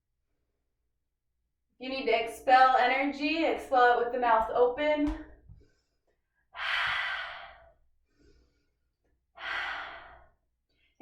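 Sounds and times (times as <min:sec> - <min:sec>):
woman exhaling hard: 0:09.4 - 0:10.2.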